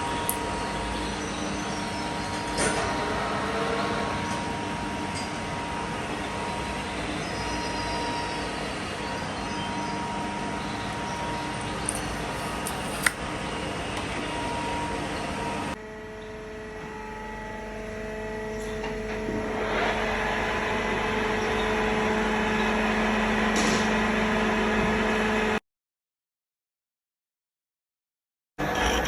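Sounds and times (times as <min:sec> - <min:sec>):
metal lathe humming: 0:04.1 - 0:13.2, 0:15.7 - 0:25.6.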